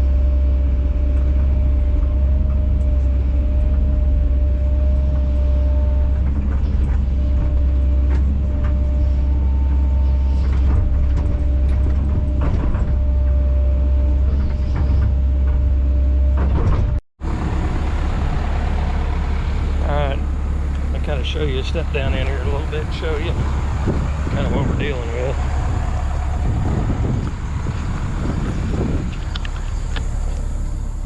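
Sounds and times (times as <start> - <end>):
excavator diesel engine running: 0.0 - 31.0
steady whine: 0.0 - 31.0.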